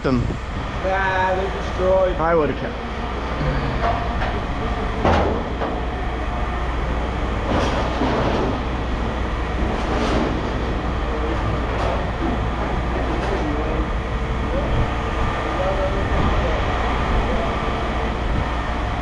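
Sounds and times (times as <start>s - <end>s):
low machinery rumble: 0.0s - 19.0s
scrap metal rattling and clanking: 7.4s - 13.6s.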